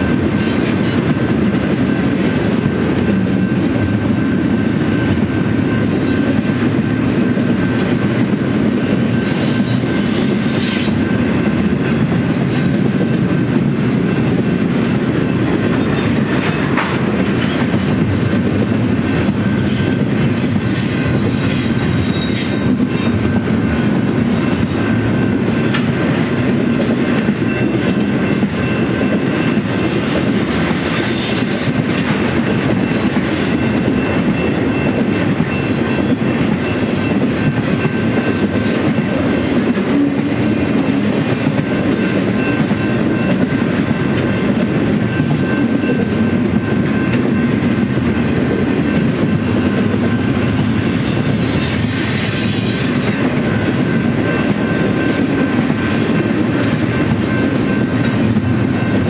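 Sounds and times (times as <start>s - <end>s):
freight train wheels rumbling: 0.0s - 59.0s
high wheel squeals: 18.3s - 23.1s, 49.2s - 55.6s.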